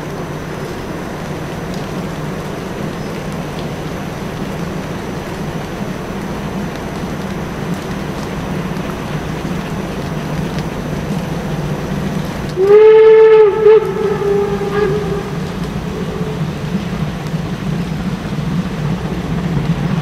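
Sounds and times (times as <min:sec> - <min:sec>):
steady rushing noise: 0:00.0 - 0:20.0
steam whistle blast: 0:12.6 - 0:16.8.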